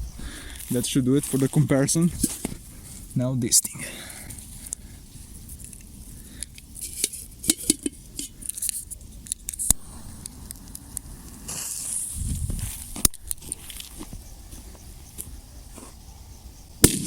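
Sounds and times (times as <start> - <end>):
firework crackles and clicks: 8.4 - 14.1, 16.8 - 17.0
low rumble: 9.7 - 10.4
firework hissing whoosh: 9.7 - 12.9.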